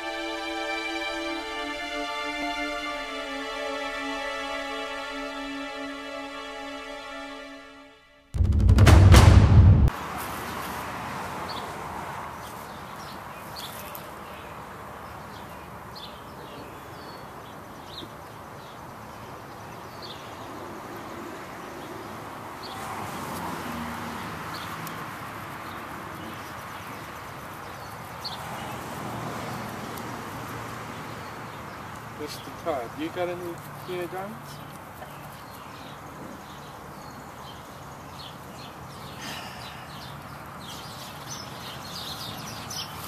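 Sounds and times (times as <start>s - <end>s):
outdoor background noise: 8.9s - 43.0s
birds chirping: 30.9s - 43.0s.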